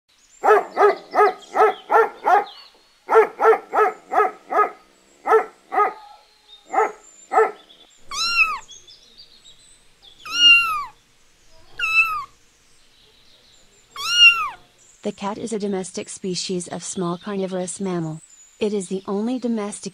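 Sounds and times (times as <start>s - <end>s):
short quick animal calls: 3.1s - 8.7s, 10.2s - 12.4s, 13.9s - 14.7s
kittens meowing: 5.7s - 8.8s, 10.2s - 11.0s, 11.6s - 12.4s, 13.9s - 14.7s.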